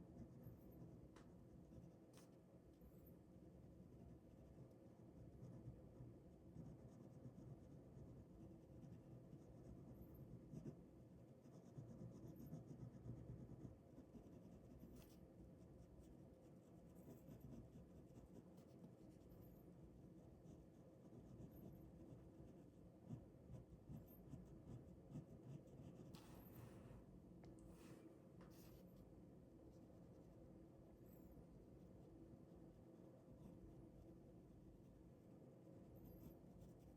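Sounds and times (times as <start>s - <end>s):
pen scratching on paper: 0.0s - 1.0s, 5.2s - 19.7s, 20.4s - 26.7s.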